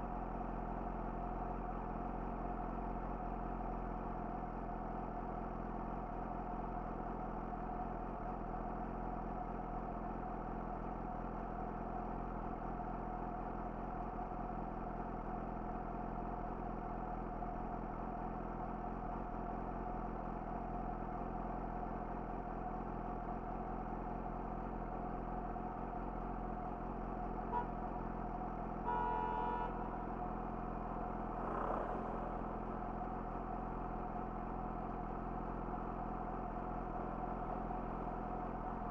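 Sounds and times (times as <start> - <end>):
motorcycle engine idling: 0.0 - 38.9
vehicle horn honk: 27.5 - 27.8, 28.8 - 30.1.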